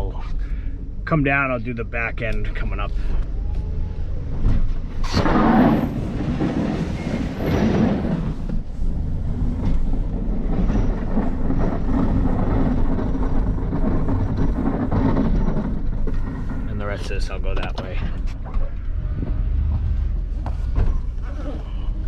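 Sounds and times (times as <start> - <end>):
vehicle engine rumbling: 0.0 - 22.0
plow blade scraping snow: 5.0 - 14.7.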